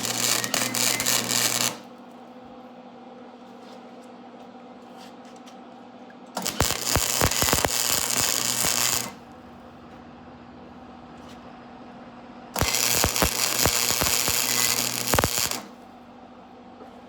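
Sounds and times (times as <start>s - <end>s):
electric arc welding crackling: 0.0s - 1.9s, 6.4s - 9.2s, 12.6s - 15.8s
steady low hum: 6.4s - 17.0s.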